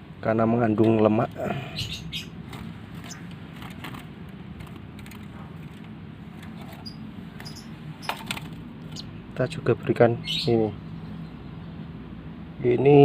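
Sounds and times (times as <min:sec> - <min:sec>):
low background hum: 0:00.0 - 0:13.0
handling clicks and rattles: 0:02.4 - 0:09.0.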